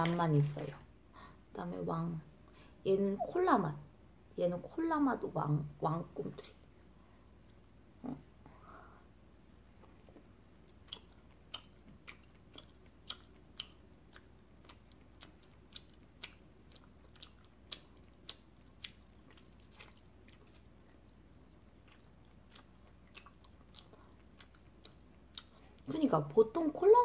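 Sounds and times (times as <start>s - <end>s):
sticky chewing mouth clicks: 10.7s - 20.8s, 21.4s - 25.8s.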